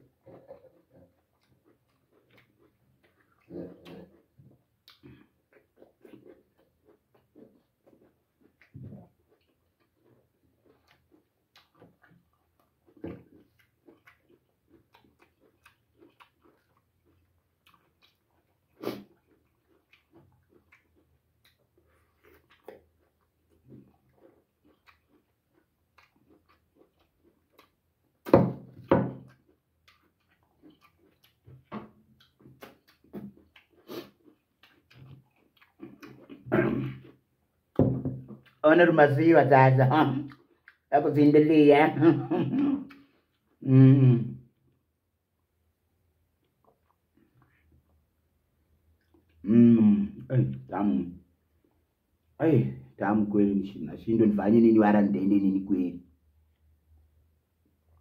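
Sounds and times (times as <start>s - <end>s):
person chewing and lip smacking: 0.1s - 38.6s, 40.1s - 40.9s, 42.5s - 43.7s, 46.3s - 48.0s, 48.9s - 49.5s.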